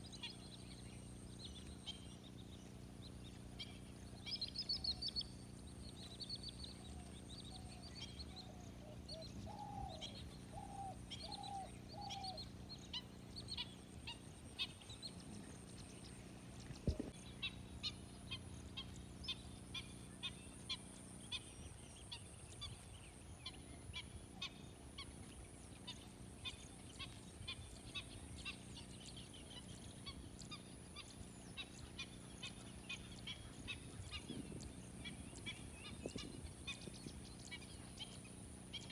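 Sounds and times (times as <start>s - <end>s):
birds chirping and singing: 0.0s - 22.8s, 27.4s - 38.9s.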